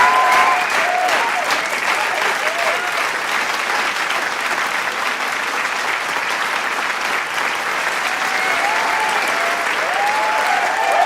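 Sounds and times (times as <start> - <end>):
cheering shouts: 0.0 - 3.1, 7.9 - 11.0
crowd applauding: 0.0 - 11.0.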